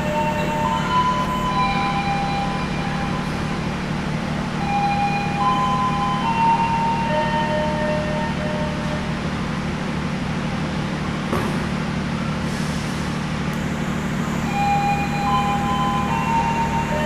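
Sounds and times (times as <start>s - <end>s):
passenger train running: 0.0s - 17.0s.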